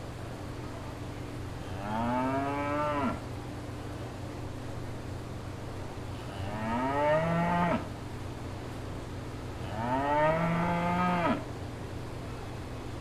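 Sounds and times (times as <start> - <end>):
cow mooing: 9.6 - 11.4.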